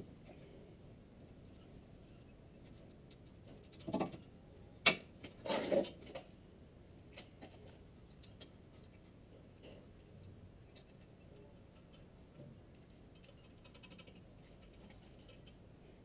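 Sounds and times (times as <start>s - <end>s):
scattered clicks and knocks: 2.6s - 6.3s, 10.7s - 15.6s.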